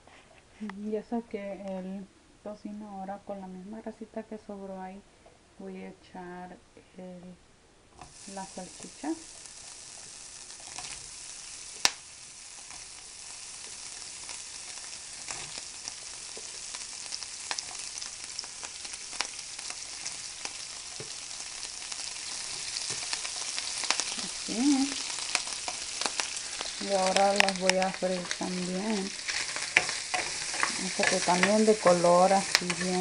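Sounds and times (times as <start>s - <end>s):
sausage sizzling in fat: 8.0s - 33.0s.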